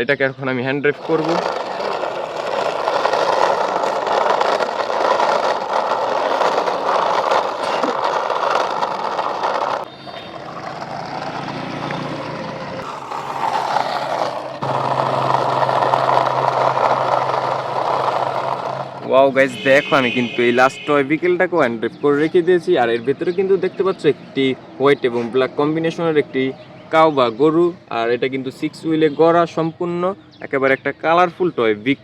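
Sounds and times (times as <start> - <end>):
toy truck wheels rolling and rattling: 0.9 - 12.2, 12.8 - 21.1.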